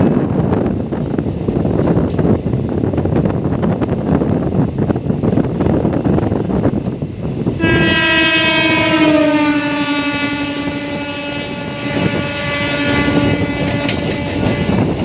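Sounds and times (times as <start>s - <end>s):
moving train rumble: 0.0s - 15.0s
train horn blast: 7.6s - 15.0s.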